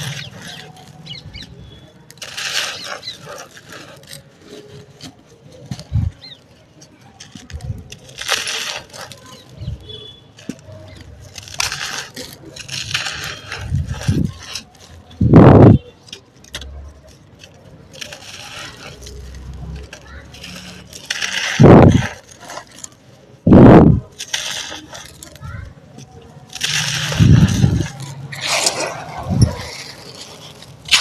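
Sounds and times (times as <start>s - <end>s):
sand-cement chunks crunching: 0.0s - 31.0s.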